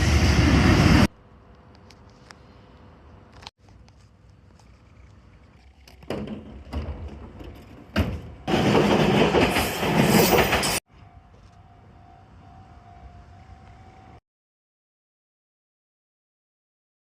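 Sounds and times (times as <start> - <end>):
train rushing noise: 0.0 - 1.2, 7.2 - 14.2
faint steady tone: 10.9 - 14.2.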